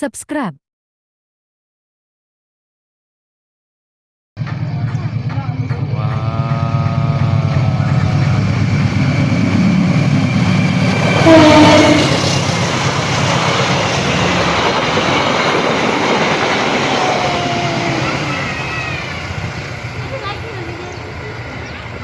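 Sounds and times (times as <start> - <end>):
train rumble and wheel clatter: 4.4 - 22.0
train horn: 10.8 - 12.8.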